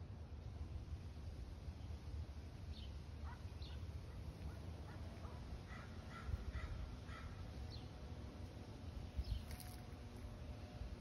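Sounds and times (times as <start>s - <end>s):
low steady rumble: 0.0s - 11.0s
birds chirping: 2.6s - 8.2s, 8.8s - 11.0s.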